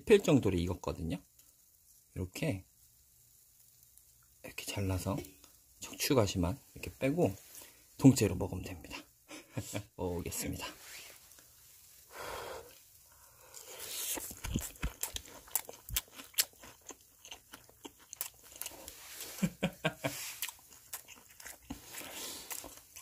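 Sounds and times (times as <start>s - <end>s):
person chewing crunchy fish: 13.4s - 23.0s.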